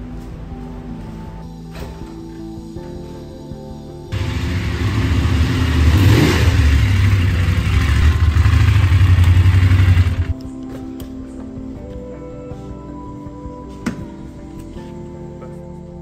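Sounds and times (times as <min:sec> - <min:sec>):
music: 0:00.0 - 0:16.0
motorcycle engine running: 0:04.1 - 0:10.3.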